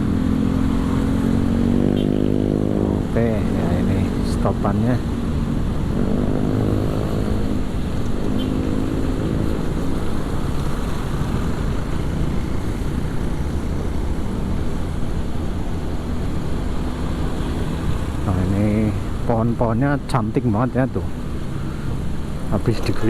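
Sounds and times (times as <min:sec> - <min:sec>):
wind and road noise: 0:00.0 - 0:23.0.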